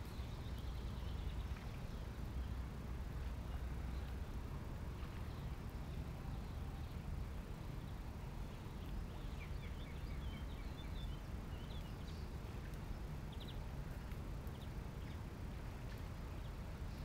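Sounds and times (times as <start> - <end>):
small birds chirping: 0.0 - 2.6, 5.2 - 15.3
low background rumble: 0.0 - 17.0.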